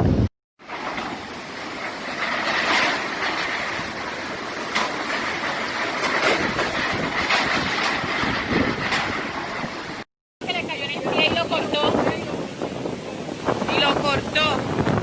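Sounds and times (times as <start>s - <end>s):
rushing wind: 0.0s - 15.0s
rushing water: 0.6s - 15.0s.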